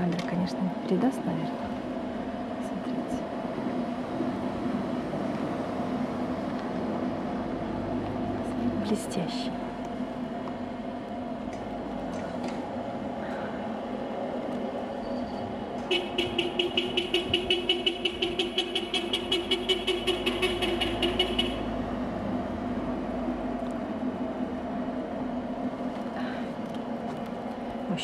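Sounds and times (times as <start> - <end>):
steady low hum: 0.0 - 28.0
car horn short beeps: 15.9 - 21.7.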